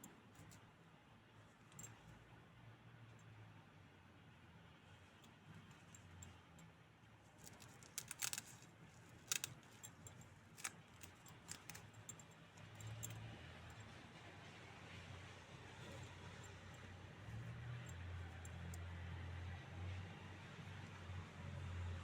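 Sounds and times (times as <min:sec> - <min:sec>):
plastic toy handling clicks: 0:07.4 - 0:09.9, 0:10.6 - 0:12.2.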